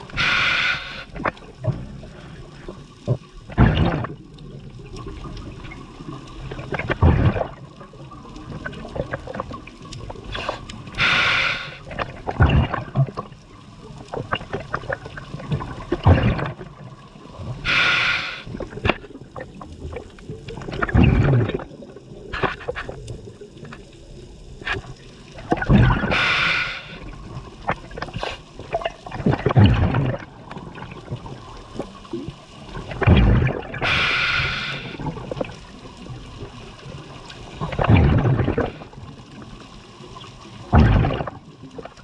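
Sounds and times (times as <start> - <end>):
gurgling exhaled bubbles: 0.0 - 42.0
regulator hissing inhalation: 0.1 - 1.2, 10.3 - 11.9, 17.6 - 18.5, 26.0 - 27.1, 33.8 - 35.1.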